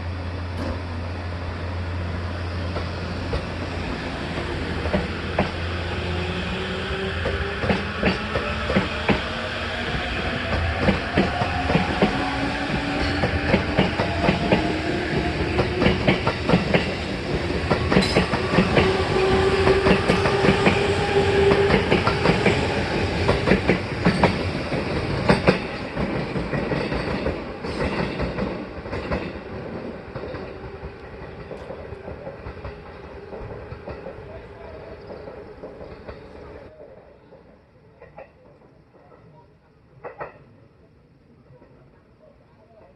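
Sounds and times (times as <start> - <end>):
wheels clacking on rail joints: 10.4 - 34.4.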